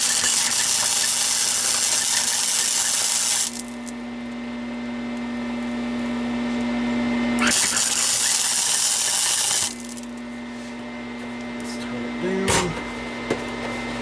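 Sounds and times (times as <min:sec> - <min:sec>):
welding arc crackling and hissing: 0:00.0 - 0:04.0, 0:07.4 - 0:10.2
steady low hum: 0:00.0 - 0:13.1.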